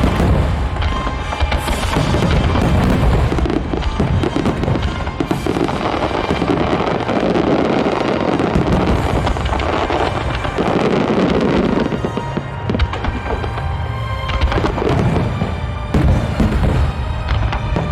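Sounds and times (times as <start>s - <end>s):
fireworks crackling and booming: 0.0s - 17.9s
music playing: 0.0s - 17.9s.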